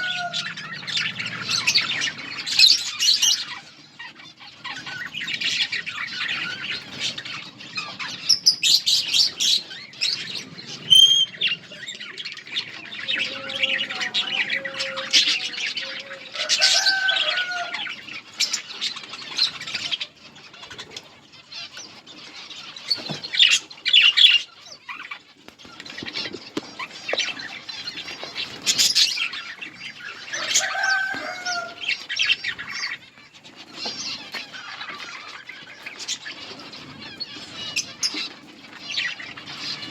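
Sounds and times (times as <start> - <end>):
budgerigars chattering and chirping: 0.0 - 39.9
wings fluttering: 22.8 - 39.9.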